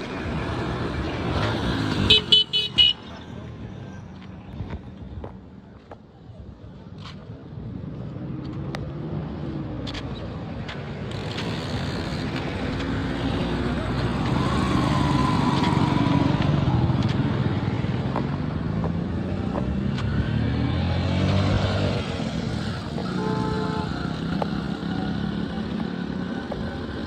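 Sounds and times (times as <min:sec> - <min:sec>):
vehicle engines passing: 0:00.0 - 0:27.0.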